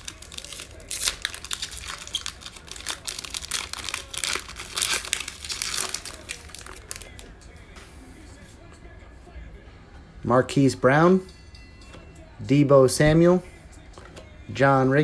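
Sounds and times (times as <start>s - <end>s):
plastic wrapper crinkling and tearing: 0.0s - 7.3s.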